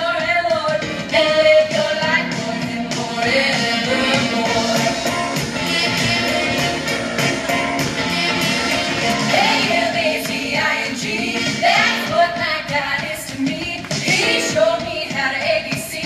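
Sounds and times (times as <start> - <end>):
woman singing: 0.0 - 5.0, 9.3 - 16.0
steady drum beat: 0.0 - 16.0
upbeat pop song: 0.0 - 16.0.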